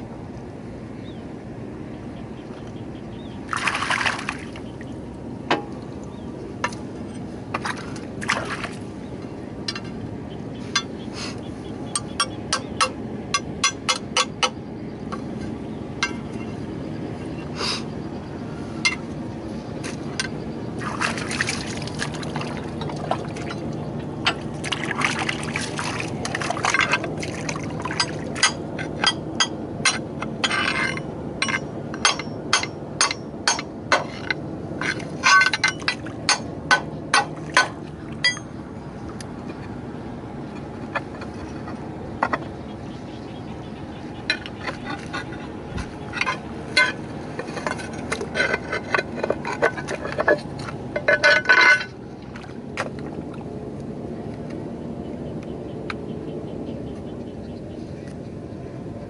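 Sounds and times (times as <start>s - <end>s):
steady low hum: 0.0s - 59.0s
metal parts clinking and knocking: 27.9s - 38.5s, 46.1s - 52.0s.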